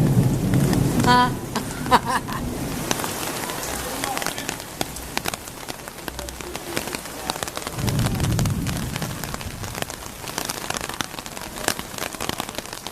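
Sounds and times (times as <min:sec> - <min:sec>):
rain drops ticking: 0:00.0 - 0:12.9
steady rain hiss: 0:00.0 - 0:12.9
low rumble: 0:04.6 - 0:10.9.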